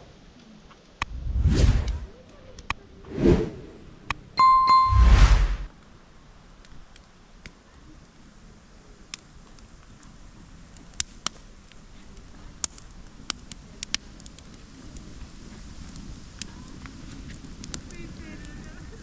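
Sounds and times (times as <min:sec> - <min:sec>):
faint low rumble: 0:01.0 - 0:02.3.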